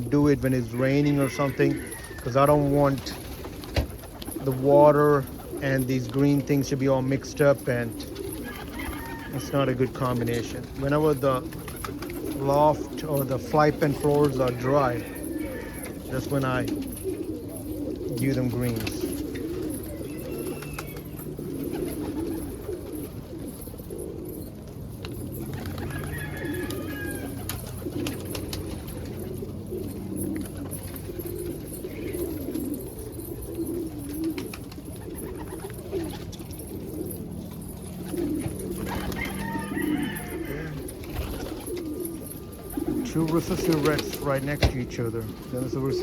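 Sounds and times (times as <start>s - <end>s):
high-pitched pigeon calls: 0.0s - 46.0s
pigeons cooing: 0.0s - 46.0s.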